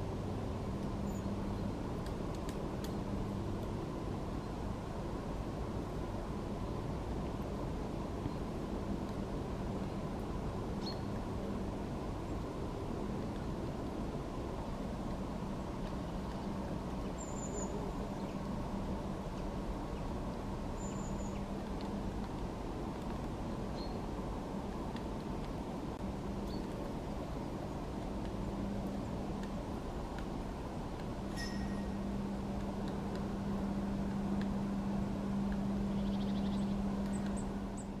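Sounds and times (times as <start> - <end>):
faint hum: 0.0 - 38.0
low background rumble: 0.0 - 38.0
high bird chirps: 31.4 - 32.0
high thin squeaky calls: 31.4 - 32.0.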